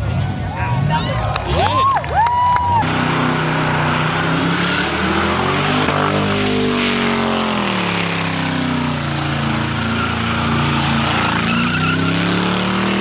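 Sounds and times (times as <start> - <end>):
car engine revving high: 0.8 - 13.0
tyres spinning and squealing: 2.7 - 13.0.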